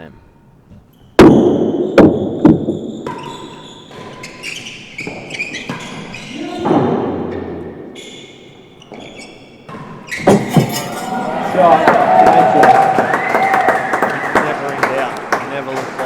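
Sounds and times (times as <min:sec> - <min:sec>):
tennis ball strikes echoing: 0:01.2 - 0:08.0.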